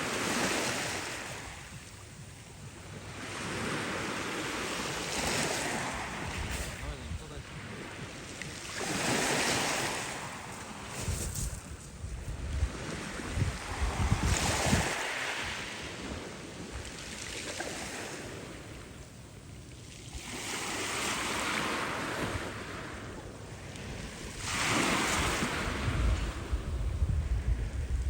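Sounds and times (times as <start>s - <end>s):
waves breaking on shore: 0.0s - 28.0s
wind buffeting microphone: 4.5s - 17.0s, 23.8s - 28.0s.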